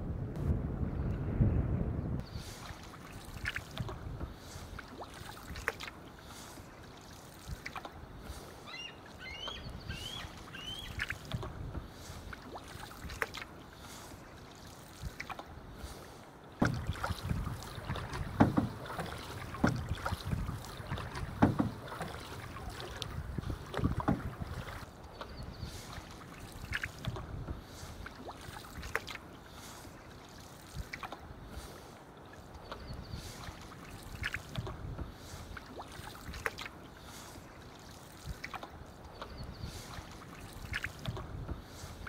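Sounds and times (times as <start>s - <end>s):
canoe paddle strokes: 2.2s - 42.0s
water splashing and lapping: 2.2s - 42.0s
bird rising chirps: 8.7s - 11.0s.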